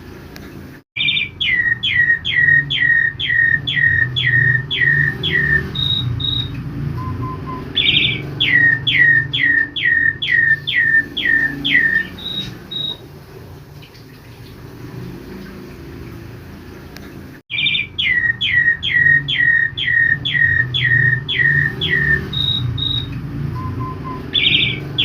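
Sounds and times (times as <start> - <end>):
starling singing: 1.0 - 13.1, 17.5 - 25.0.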